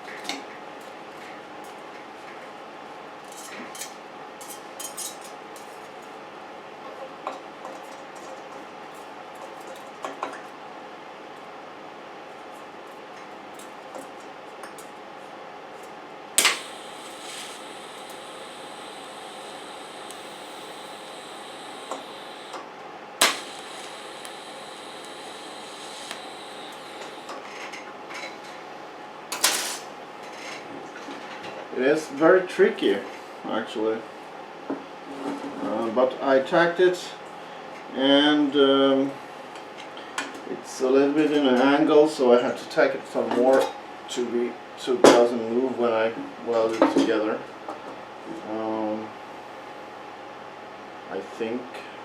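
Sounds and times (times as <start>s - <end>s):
tack weld crackling: 16.4s - 22.6s, 23.2s - 27.4s
steady hum: 16.4s - 27.4s.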